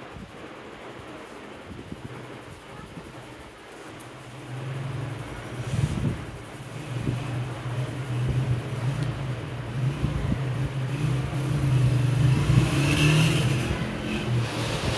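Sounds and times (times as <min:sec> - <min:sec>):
engine running with low hum: 0:03.8 - 0:14.9.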